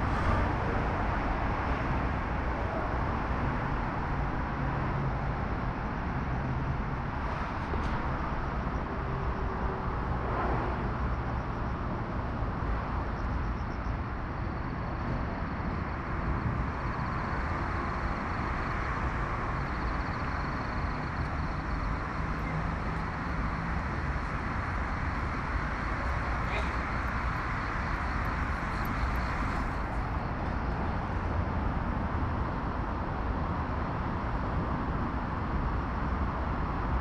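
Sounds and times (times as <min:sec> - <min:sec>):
distant road traffic rumble: 0:00.0 - 0:37.0.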